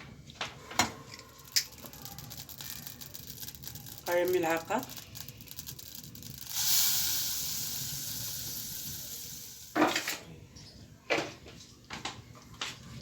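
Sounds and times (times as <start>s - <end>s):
butter and flour sizzling in a pan: 6.5s - 10.0s.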